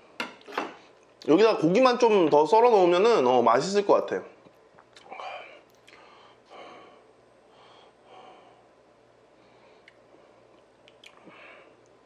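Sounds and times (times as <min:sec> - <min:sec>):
chewing: 0:09.8 - 0:12.0.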